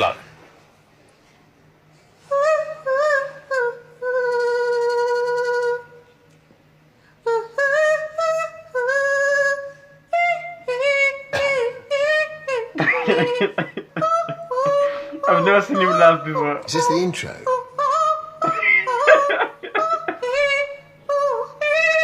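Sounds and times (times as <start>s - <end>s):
woman singing in a high voice: 2.2s - 6.0s, 7.3s - 16.4s, 17.6s - 22.0s.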